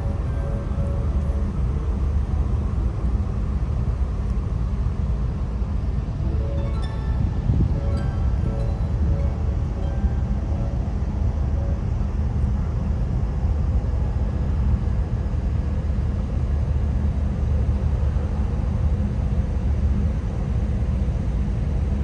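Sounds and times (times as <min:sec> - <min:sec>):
ferry engines droning: 0:00.0 - 0:16.8.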